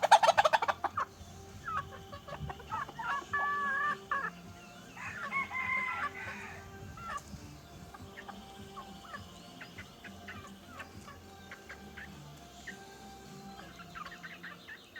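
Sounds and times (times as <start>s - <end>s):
chickens clucking: 0.0s - 14.9s
rooster crowing: 4.9s - 6.8s.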